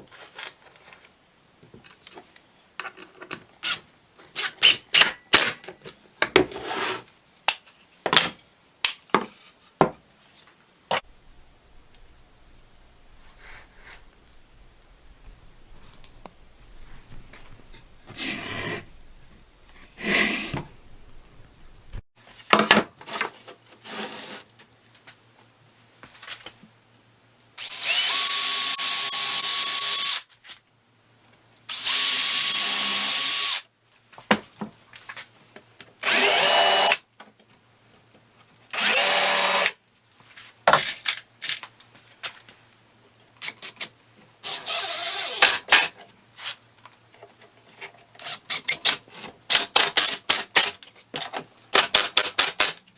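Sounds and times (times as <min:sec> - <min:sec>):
cordless drill driving screws: 0:27.6 - 0:30.2, 0:31.7 - 0:33.6, 0:36.0 - 0:37.0, 0:38.8 - 0:39.8, 0:44.4 - 0:45.6.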